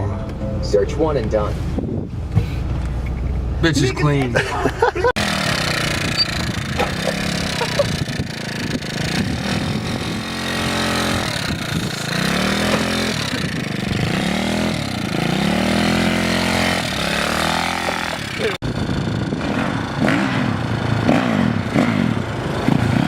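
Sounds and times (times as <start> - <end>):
small motorcycle engine revving: 5.2 - 23.0.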